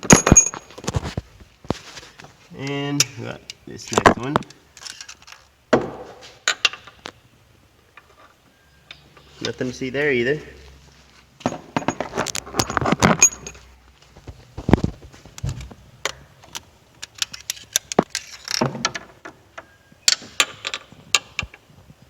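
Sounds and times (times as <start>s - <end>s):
metal tools clinking: 0.0s - 0.8s, 11.4s - 13.7s.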